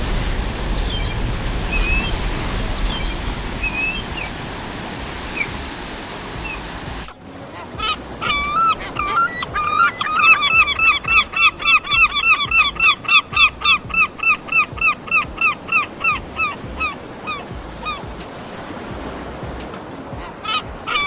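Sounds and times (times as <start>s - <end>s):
animal honking calls: 7.4s - 18.0s.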